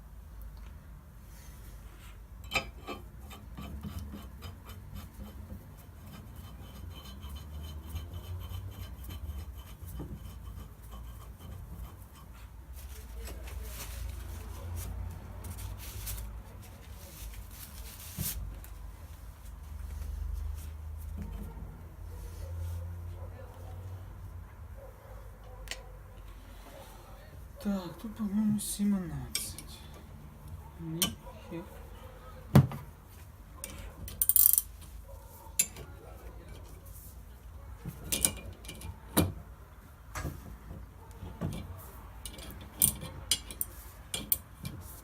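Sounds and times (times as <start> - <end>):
rubbing and scraping on metal: 1.9 - 18.5, 40.4 - 45.0.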